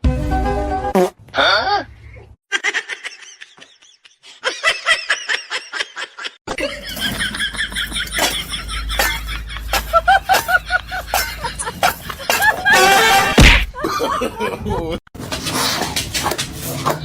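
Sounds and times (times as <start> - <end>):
people laughing: 2.5 - 15.0.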